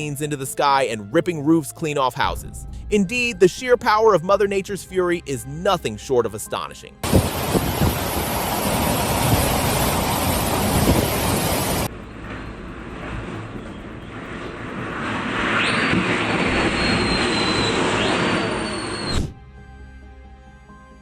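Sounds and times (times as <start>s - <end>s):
storm wind blowing on microphone: 7.0s - 19.3s.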